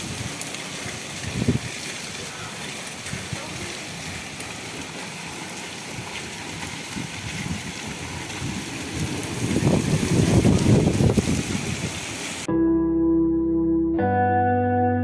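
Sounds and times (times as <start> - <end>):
heavy rain: 0.0 - 12.5
low rumbling: 7.1 - 11.8.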